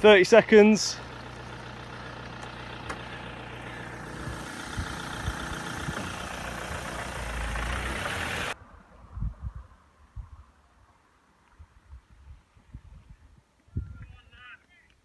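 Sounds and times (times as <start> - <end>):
vehicle engine humming: 0.0 - 8.6
road noise: 0.0 - 12.0.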